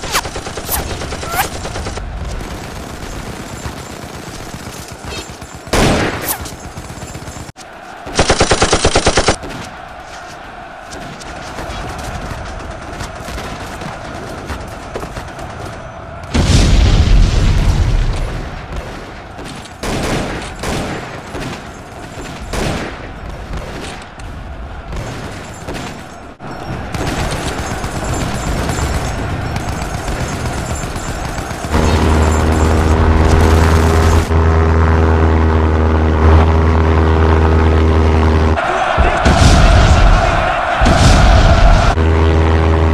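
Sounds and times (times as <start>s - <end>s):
gunshots: 0.0s - 34.4s, 38.6s - 42.0s
large explosion: 16.3s - 18.7s, 39.0s - 42.0s
deep engine drone: 31.6s - 38.6s, 41.8s - 42.9s.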